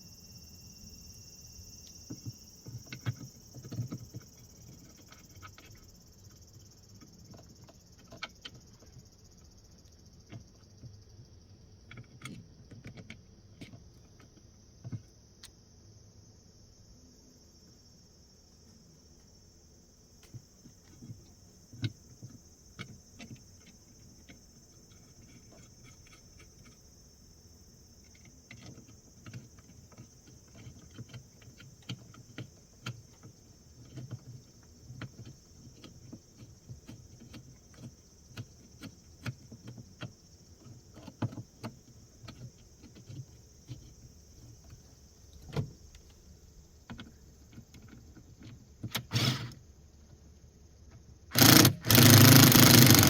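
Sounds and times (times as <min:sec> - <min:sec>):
high insect trill: 0:00.0 - 0:53.0
tools clicking and knocking: 0:51.3 - 0:53.0.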